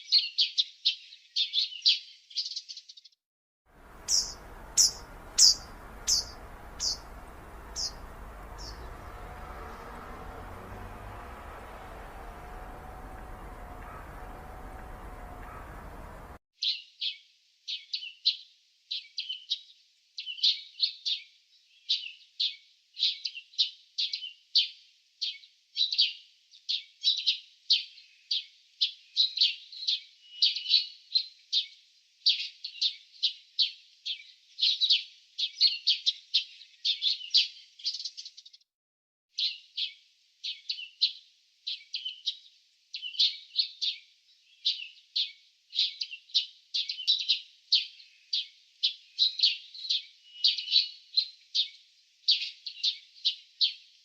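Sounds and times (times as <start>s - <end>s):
small birds chirping: 0.0s - 3.2s, 3.8s - 17.2s, 39.4s - 53.9s.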